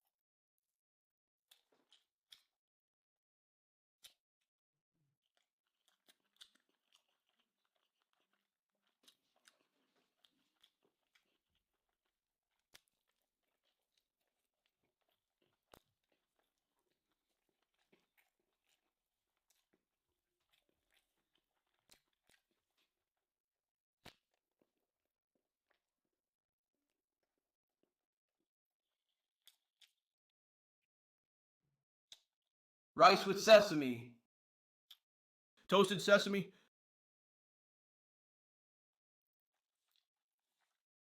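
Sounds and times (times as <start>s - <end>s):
person chewing: 1.5s - 2.6s, 4.0s - 4.5s, 5.2s - 23.3s, 24.0s - 24.7s, 29.4s - 30.1s, 39.7s - 40.9s.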